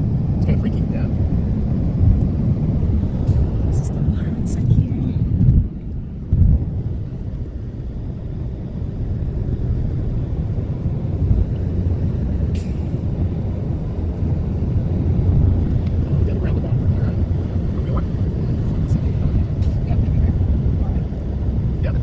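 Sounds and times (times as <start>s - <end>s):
car road noise rumble: 0.0s - 22.0s.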